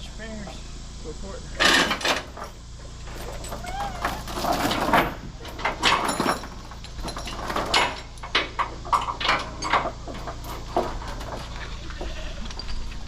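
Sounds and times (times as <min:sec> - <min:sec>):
metal chains clanking: 0:01.6 - 0:11.6.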